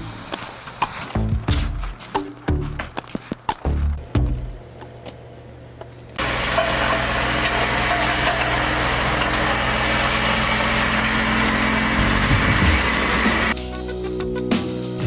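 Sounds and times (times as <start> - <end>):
engine running: 6.2 - 13.6.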